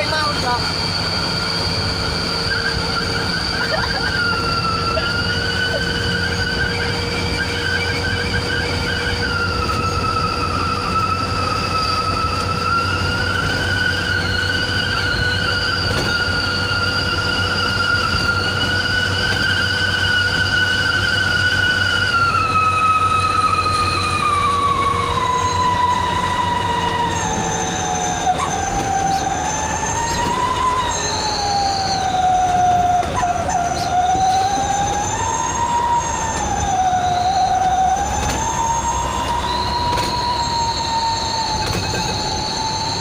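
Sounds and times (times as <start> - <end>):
diesel engine drone: 0.0 - 43.0
whistle exhaust howling: 0.0 - 43.0.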